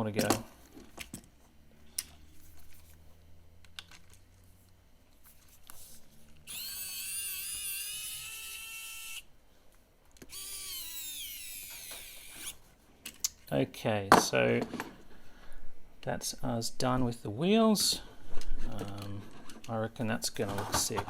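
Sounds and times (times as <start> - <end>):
electric screwdriver motor whine: 6.4 - 9.3, 10.3 - 12.6.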